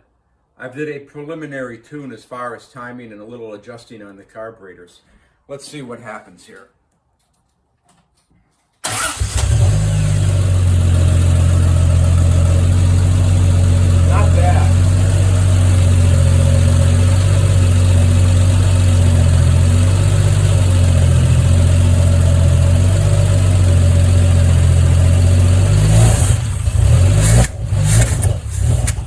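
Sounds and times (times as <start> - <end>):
car engine running: 9.1 - 29.0.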